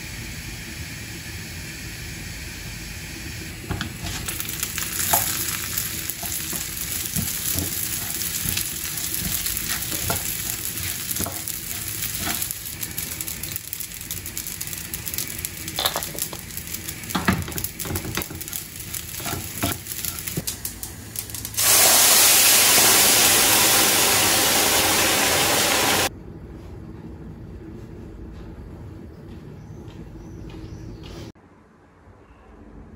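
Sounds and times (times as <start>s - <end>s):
food sizzling in a pan: 3.1s - 26.1s
loud even hiss: 21.5s - 26.1s.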